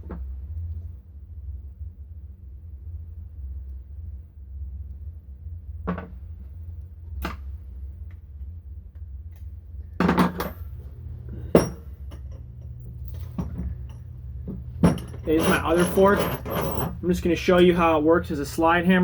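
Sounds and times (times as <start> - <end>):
steady low hum: 0.0 - 19.0
metal parts knocking and clinking: 10.0 - 10.6, 11.5 - 17.0.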